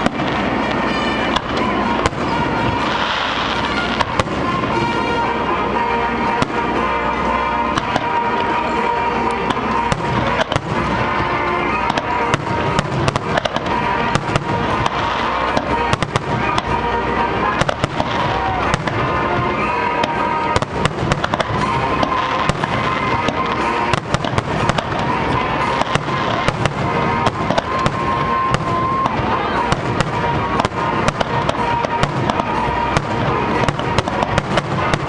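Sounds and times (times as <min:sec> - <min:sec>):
fireworks bangs: 0:00.0 - 0:35.0.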